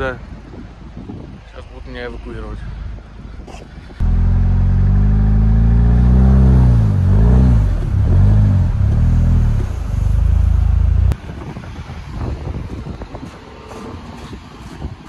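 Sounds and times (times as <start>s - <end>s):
car engine revving: 4.0s - 11.2s.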